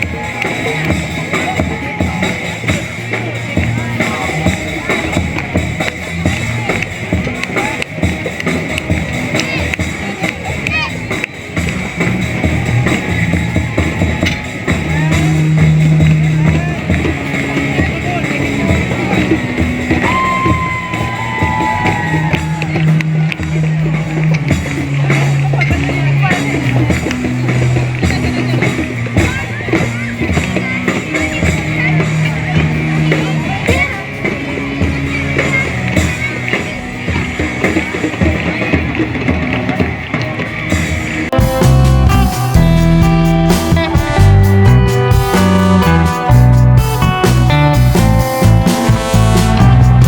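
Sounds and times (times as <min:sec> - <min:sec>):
low bass notes: 0:00.0 - 0:37.6, 0:41.1 - 0:50.0
live band music: 0:00.0 - 0:50.0
sharp percussive hits: 0:39.6 - 0:50.0
sustained guitar chords: 0:41.3 - 0:50.0
long held high note: 0:41.4 - 0:50.0.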